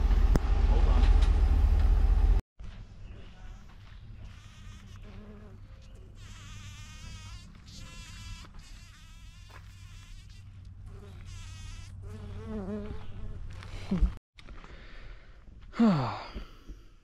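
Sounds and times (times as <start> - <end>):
bumblebee buzzing: 4.2 - 13.6.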